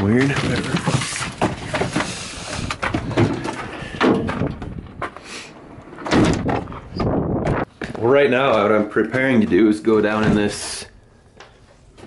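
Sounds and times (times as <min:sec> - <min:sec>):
van doors clunking: 0:05.9 - 0:07.6.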